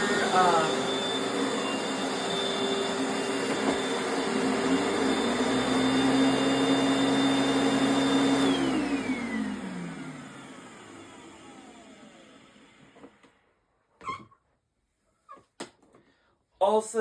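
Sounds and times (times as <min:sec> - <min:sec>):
vacuum motor winding down: 0:00.0 - 0:13.4
vacuum cleaner running: 0:00.0 - 0:13.5.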